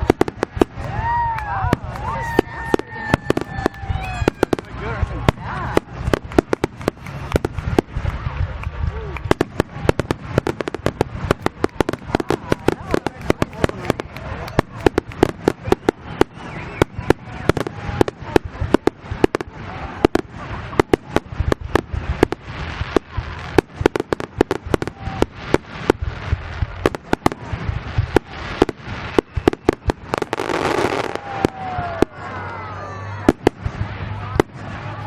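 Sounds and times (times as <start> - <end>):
crackling hiss: 0.0 - 35.0
fireworks bangs: 0.0 - 35.0.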